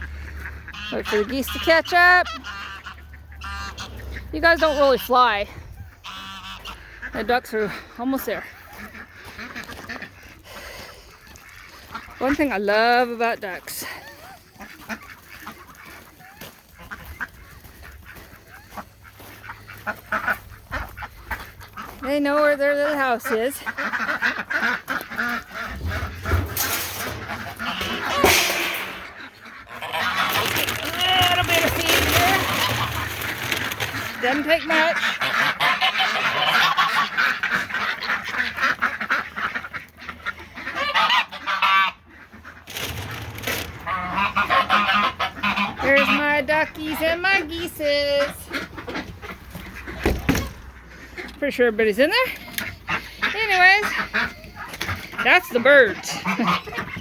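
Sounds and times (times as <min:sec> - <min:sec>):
geese and ducks calling: 0:00.0 - 0:57.0.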